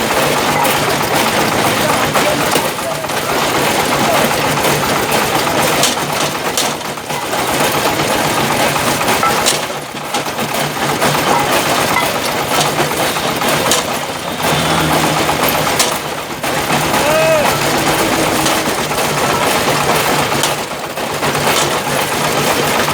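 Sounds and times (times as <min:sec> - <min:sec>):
brick crushing clatter: 0:00.0 - 0:22.9
engine drone: 0:00.0 - 0:22.9
sharp knocks: 0:11.0 - 0:22.2.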